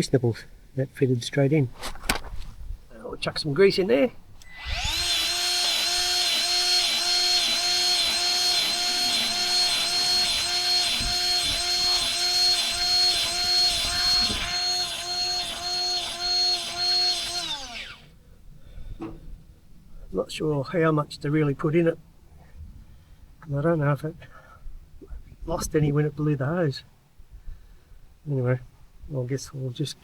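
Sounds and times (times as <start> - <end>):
grease gun motor whining: 4.4 - 18.1.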